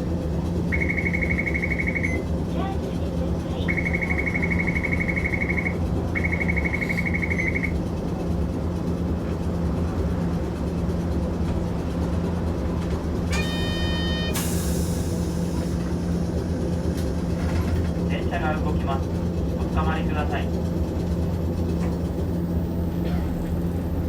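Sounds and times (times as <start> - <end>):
tram interior hum: 0.0 - 24.0
short tone: 0.7 - 2.2, 3.6 - 7.8, 13.3 - 14.6
buzzer: 13.4 - 14.4.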